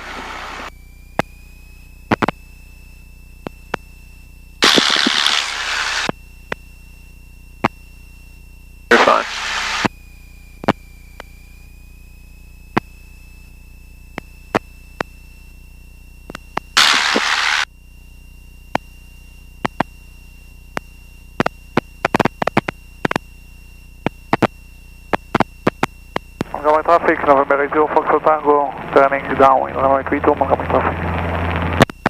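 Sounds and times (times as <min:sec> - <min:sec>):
faint steady whine: 0:00.0 - 0:32.0
radio static burst: 0:04.6 - 0:06.1, 0:08.9 - 0:09.9, 0:16.8 - 0:17.7, 0:24.2 - 0:32.0
low intercom hum: 0:08.4 - 0:09.9, 0:25.6 - 0:32.0.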